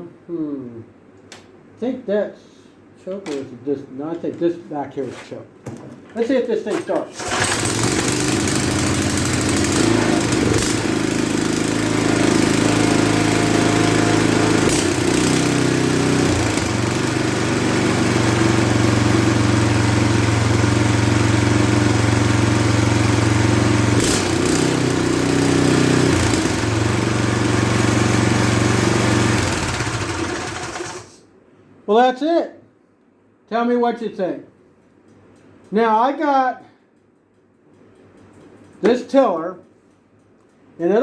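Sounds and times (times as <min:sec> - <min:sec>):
tiller engine running: 0:07.2 - 0:31.1.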